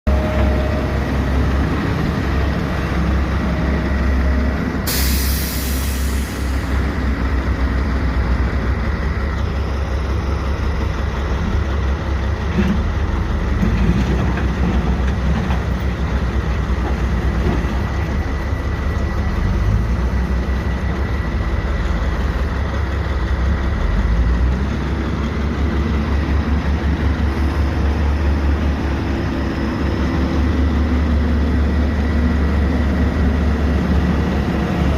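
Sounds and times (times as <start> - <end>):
diesel engine rumbling: 0.0 - 34.9
loud hissing: 4.9 - 6.8.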